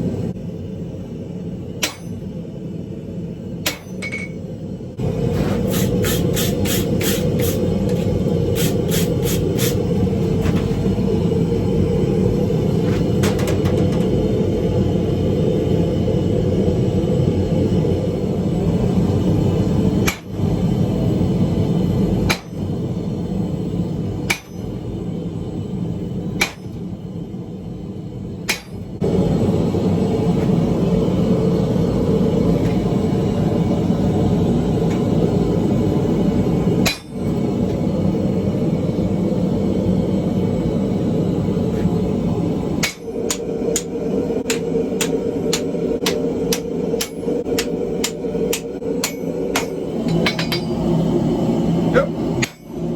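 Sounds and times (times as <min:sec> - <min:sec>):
hammer striking iron on anvil: 0:01.8 - 0:02.4, 0:03.6 - 0:04.4, 0:20.0 - 0:20.4, 0:22.2 - 0:22.7, 0:24.2 - 0:24.8, 0:26.4 - 0:26.8, 0:28.5 - 0:28.9, 0:36.8 - 0:37.4, 0:42.8 - 0:50.9, 0:52.4 - 0:52.9
low rumble: 0:07.2 - 0:52.9.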